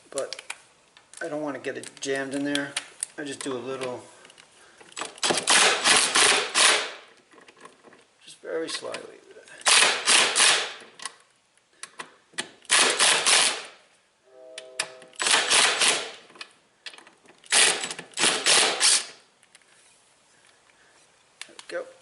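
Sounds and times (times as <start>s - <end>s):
impact driver rattling bursts: 5.1s - 7.1s, 9.6s - 10.8s, 12.6s - 13.8s, 15.2s - 16.2s, 17.4s - 19.2s.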